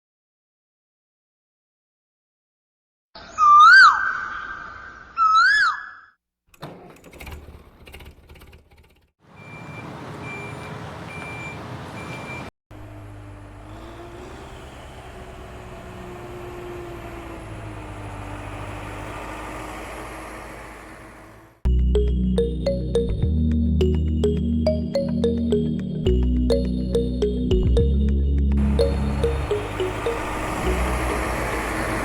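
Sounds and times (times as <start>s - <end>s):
small motor whining: 12.7s - 21.6s, 29.3s - 32.0s
high electronic beeps: 23.8s - 31.4s.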